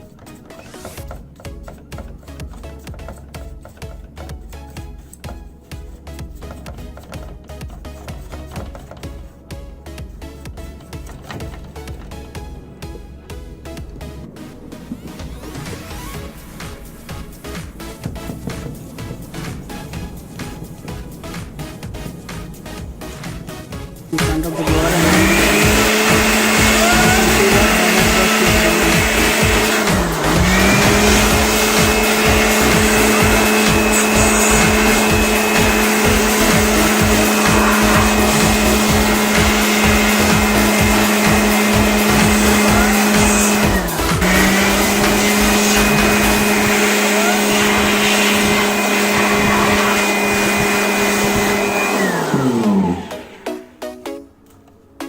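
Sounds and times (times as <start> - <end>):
motor spinning down: 13.8 - 53.8
electric air blower running: 15.5 - 53.7.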